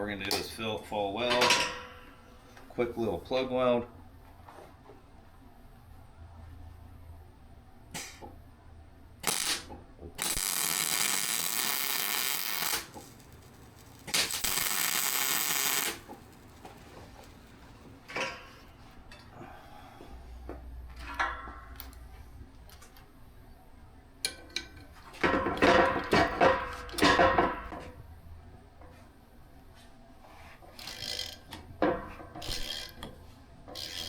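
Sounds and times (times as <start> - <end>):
welding arc hissing and crackling: 9.2 - 19.0.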